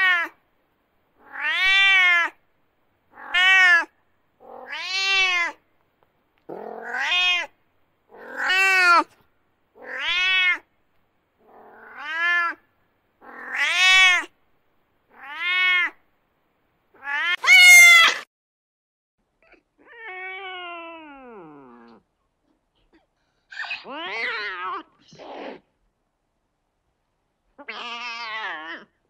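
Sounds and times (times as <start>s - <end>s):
cat meowing: 0.0s - 0.4s, 1.2s - 2.4s, 3.2s - 5.6s, 6.6s - 7.6s, 8.2s - 9.1s, 9.8s - 10.7s, 11.7s - 12.6s, 13.2s - 14.3s, 15.1s - 16.0s, 17.0s - 18.2s, 27.6s - 28.9s.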